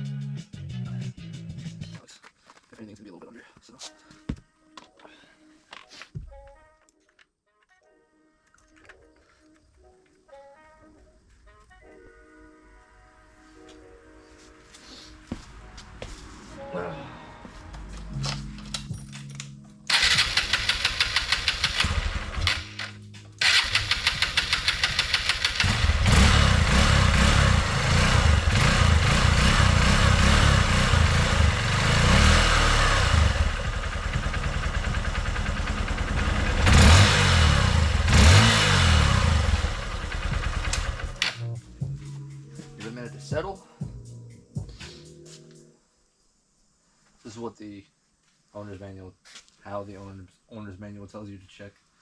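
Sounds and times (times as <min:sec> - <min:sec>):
motorcycle starter cranking: 0:18.7 - 0:27.4, 0:39.4 - 0:41.4
motorcycle engine idling and revving: 0:19.9 - 0:41.4.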